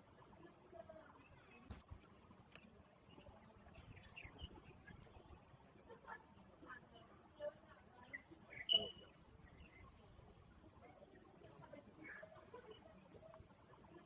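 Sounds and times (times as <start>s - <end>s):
distant chirps: 6.9s - 10.4s.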